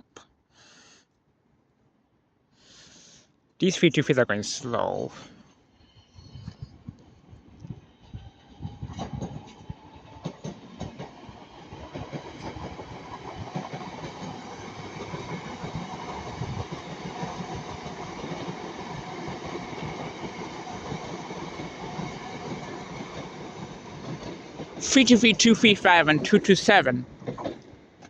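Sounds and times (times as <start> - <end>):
electric trains passing slowly: 4.8 - 28.0
wheels clicking over rail joints: 11.8 - 24.8.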